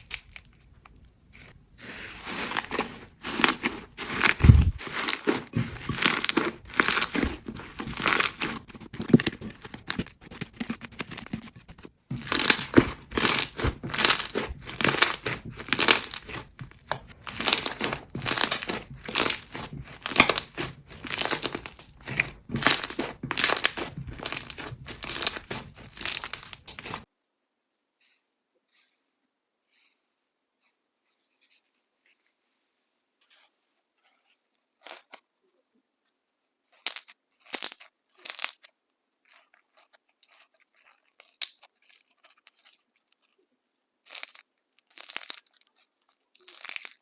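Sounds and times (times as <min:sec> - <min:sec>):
slime squishing by hand: 0:00.0 - 0:27.1.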